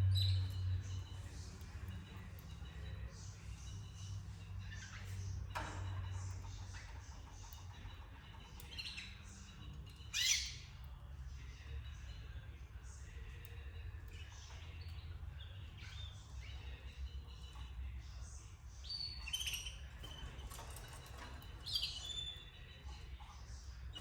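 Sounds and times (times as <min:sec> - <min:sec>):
canaries chirping: 0:00.0 - 0:24.0
low steady hum: 0:00.0 - 0:24.0.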